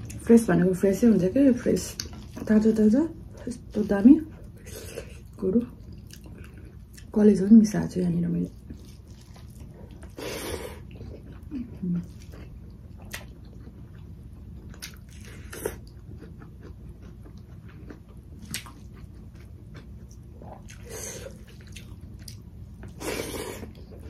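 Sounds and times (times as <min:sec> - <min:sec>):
person chewing food: 0:04.3 - 0:07.1, 0:08.5 - 0:24.0.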